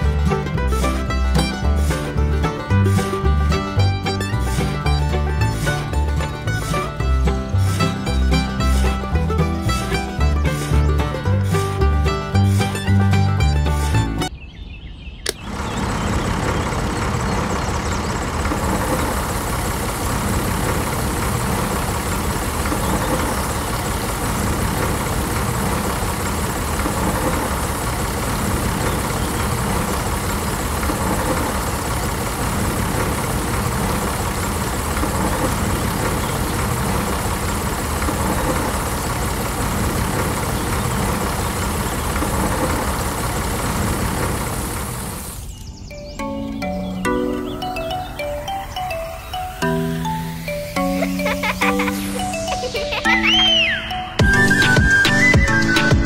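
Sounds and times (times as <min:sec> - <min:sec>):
rocker switch click: 0:15.2 - 0:15.5.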